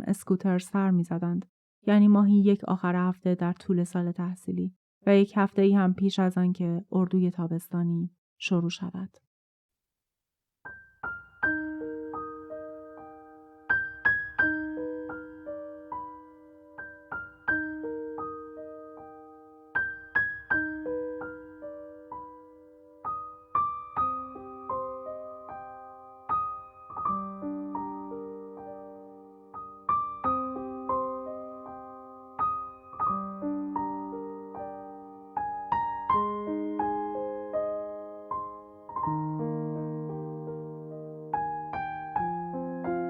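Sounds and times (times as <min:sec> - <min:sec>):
soft piano music: 0:10.7 - 0:43.0.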